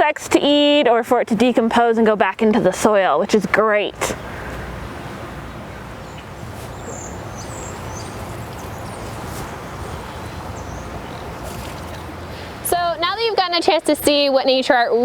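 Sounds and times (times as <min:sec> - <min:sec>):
steady rushing hiss: 0:04.5 - 0:12.8
high bird chirps: 0:06.0 - 0:12.1.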